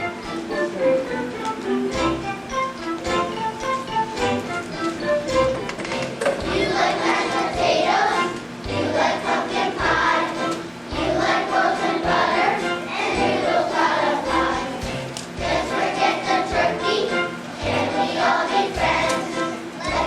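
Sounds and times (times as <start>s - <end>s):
children's choir singing: 0.0s - 20.0s
instrumental accompaniment: 0.0s - 20.0s.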